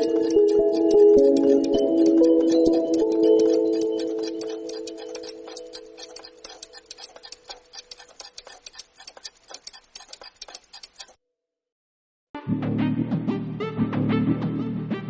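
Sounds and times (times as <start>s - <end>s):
patter of sharp ticks: 0.0s - 11.2s.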